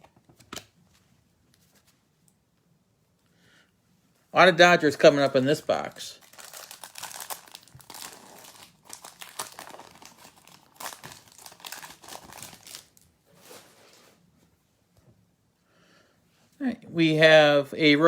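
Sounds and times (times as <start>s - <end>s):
plastic wrapper crinkling: 6.1s - 13.6s.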